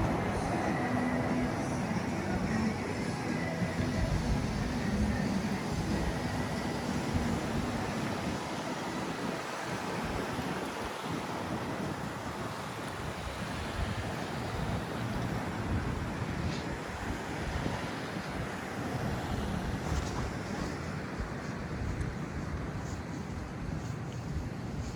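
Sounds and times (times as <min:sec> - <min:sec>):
traffic rumble: 0:00.0 - 0:09.4
wind on the microphone: 0:00.0 - 0:24.9.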